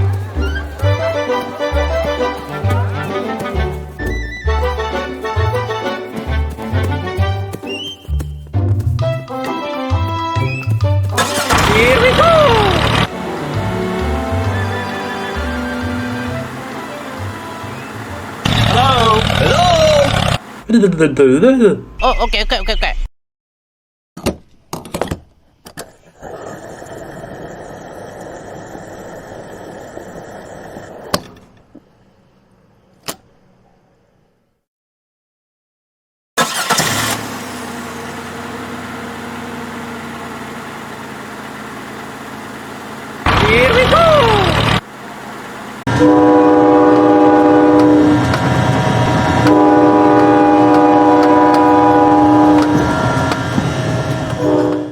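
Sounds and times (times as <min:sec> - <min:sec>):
small electric motor running: 0:11.5 - 0:13.1, 0:18.4 - 0:20.5
train horn blasts: 0:13.1 - 0:18.0, 0:45.9 - 0:54.9
sharp clicks: 0:18.5 - 0:20.4.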